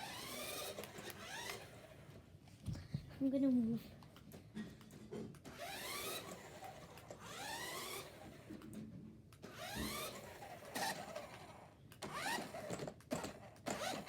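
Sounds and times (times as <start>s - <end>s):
toy car electric motor whirring: 0.0s - 2.0s, 5.5s - 8.6s, 9.4s - 14.0s.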